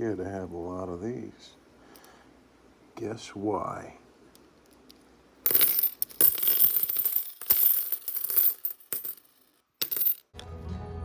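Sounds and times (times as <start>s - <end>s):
coins clinking and jingling: 5.5s - 10.3s.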